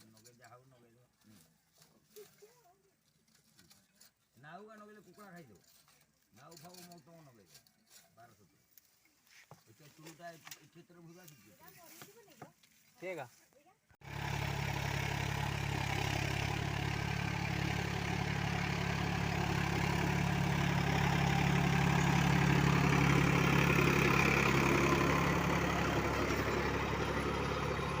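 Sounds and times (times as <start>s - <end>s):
tractor diesel engine running: 14.0s - 28.0s.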